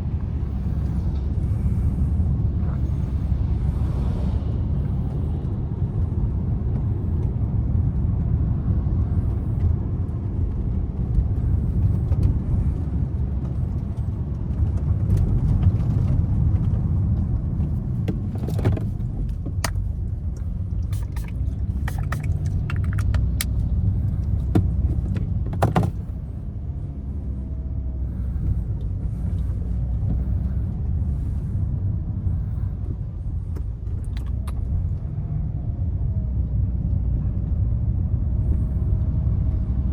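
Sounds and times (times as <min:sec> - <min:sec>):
car engine and tyre rumble: 0:00.0 - 0:39.9
sharp clicks and taps: 0:20.8 - 0:23.6.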